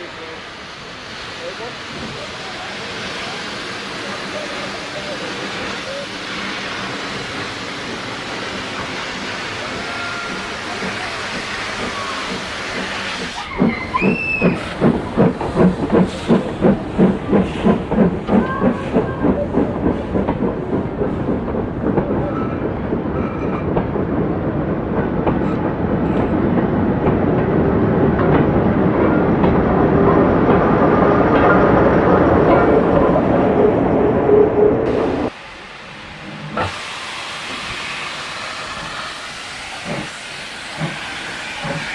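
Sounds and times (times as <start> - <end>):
steam locomotive hissing: 0.0 - 23.7, 34.8 - 41.9
locomotive exhaust beats: 0.6 - 22.5, 34.9 - 41.9
wheels squealing: 13.2 - 16.4.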